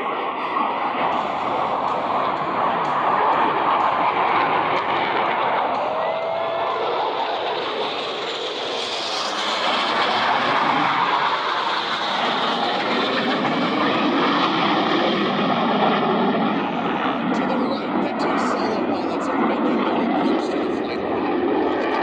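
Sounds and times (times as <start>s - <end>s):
jet roar passing overhead: 0.0s - 22.0s.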